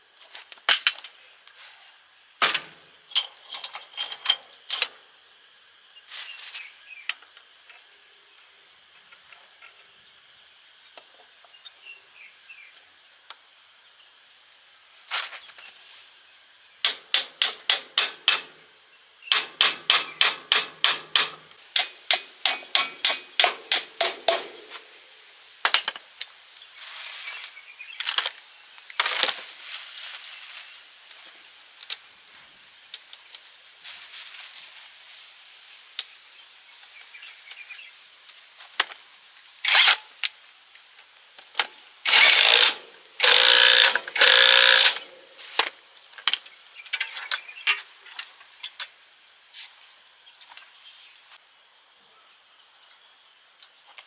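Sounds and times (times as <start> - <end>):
hammer striking metal: 16.9 - 18.6, 19.3 - 24.8.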